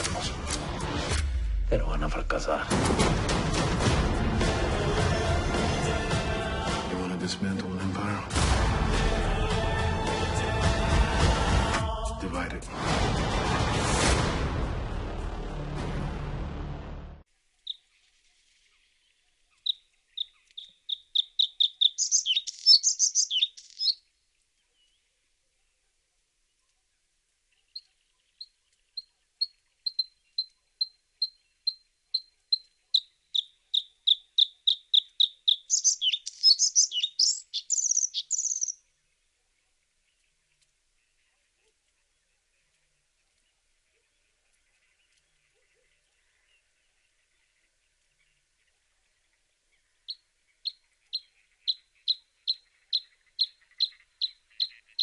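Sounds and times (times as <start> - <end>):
loud music and noise: 3.0 - 6.9, 8.4 - 11.9
songbird singing: 17.6 - 55.0.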